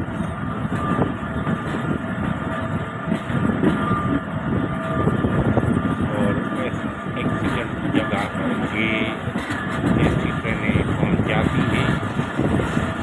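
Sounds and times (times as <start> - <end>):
train rumbling on rails: 0.0 - 13.0
knocks and clatter: 0.1 - 4.2, 7.2 - 13.0.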